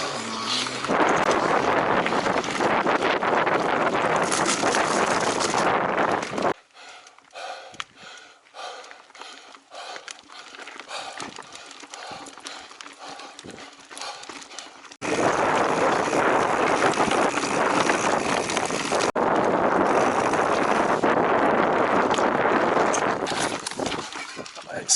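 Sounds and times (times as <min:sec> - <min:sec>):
wind rushing while riding: 0:00.0 - 0:06.6, 0:09.8 - 0:24.9
bike tyre noise: 0:00.0 - 0:24.9.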